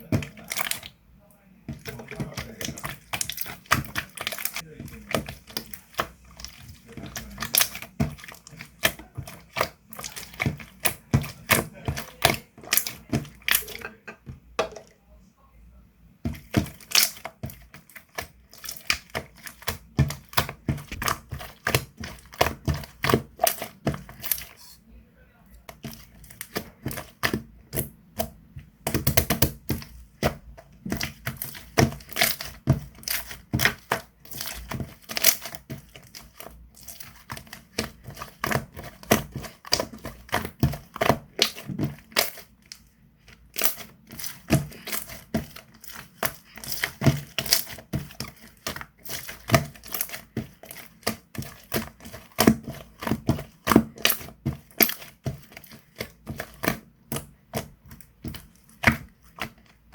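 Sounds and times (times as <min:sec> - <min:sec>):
hands squishing slime: 0:00.0 - 0:01.0, 0:01.6 - 0:15.0, 0:16.2 - 0:59.9.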